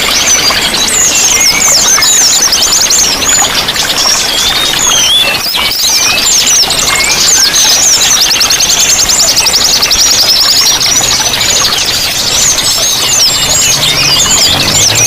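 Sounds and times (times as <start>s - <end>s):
running water: 0.0s - 15.0s
songbirds chirping and trilling: 0.0s - 15.0s.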